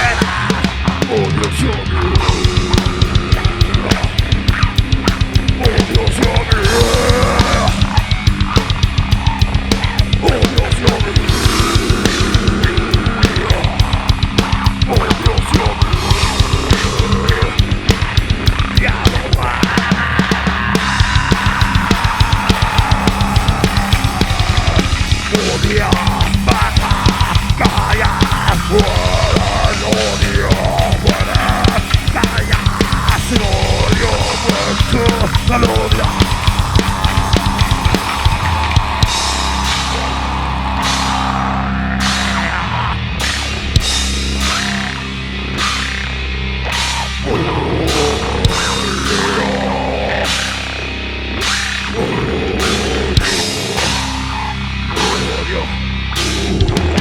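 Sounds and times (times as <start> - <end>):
fast double bass drumming: 0.0 - 57.0
heavy distorted guitars: 0.0 - 57.0.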